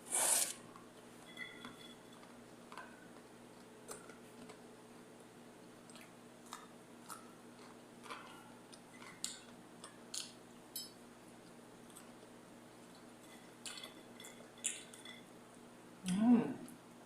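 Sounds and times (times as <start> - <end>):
faint steady hum: 0.0 - 17.0
food crunching and chewing: 2.2 - 10.7, 11.3 - 15.2.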